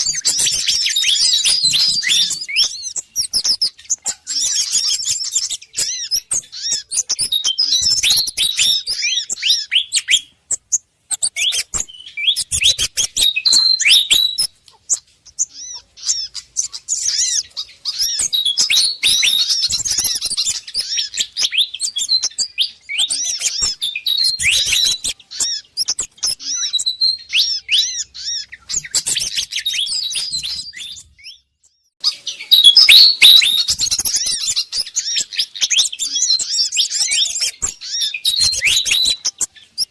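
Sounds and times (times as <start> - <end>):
small birds calling: 0.0 - 39.9
fantail bird calls: 32.0 - 39.9.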